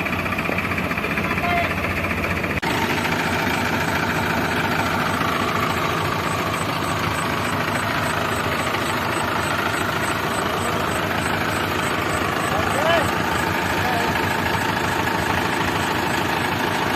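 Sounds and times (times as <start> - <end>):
heavy diesel engine running: 0.0 - 16.9.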